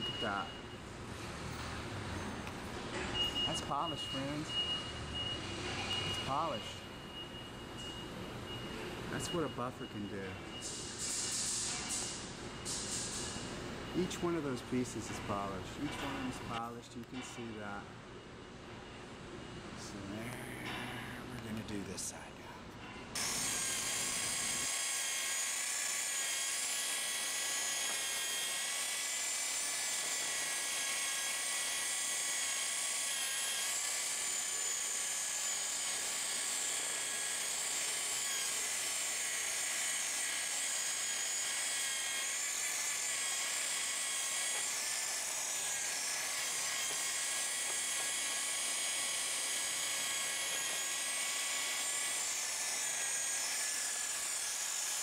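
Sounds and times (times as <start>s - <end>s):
electric polisher whining: 23.2s - 55.0s.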